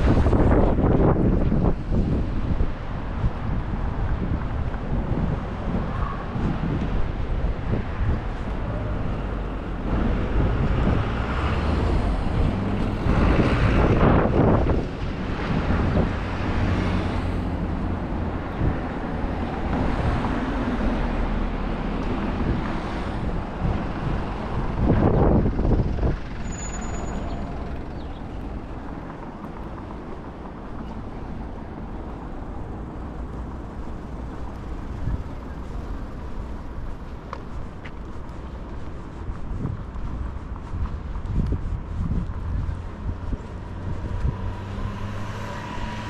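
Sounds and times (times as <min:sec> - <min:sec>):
street traffic: 0:00.0 - 0:46.0
vehicle rushing past: 0:07.7 - 0:28.8, 0:41.4 - 0:46.0.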